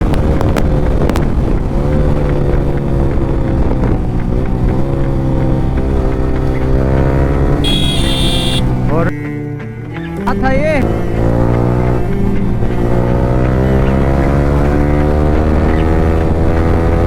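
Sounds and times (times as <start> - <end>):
wind noise on microphone: 0.0 - 4.8
motorcycle engine running: 0.0 - 9.1, 10.4 - 17.0
short high tone: 7.6 - 8.6.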